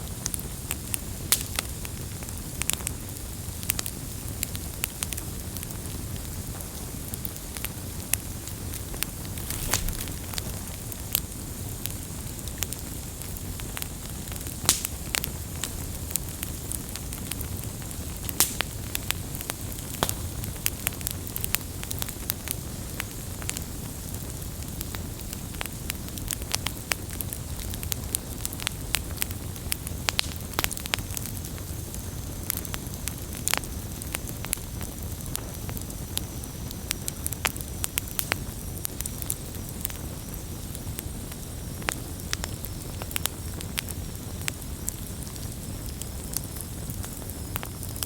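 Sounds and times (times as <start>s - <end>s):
burning wood crackling and popping: 0.0s - 48.0s
campfire flame rumble: 0.0s - 48.0s.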